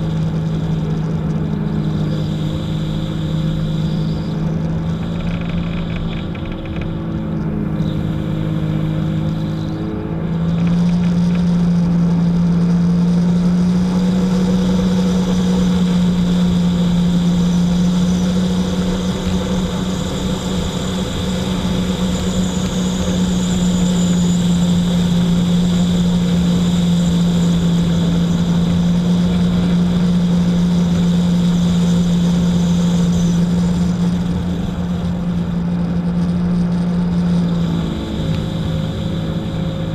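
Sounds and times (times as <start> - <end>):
jet ski engine droning: 0.0 - 39.9.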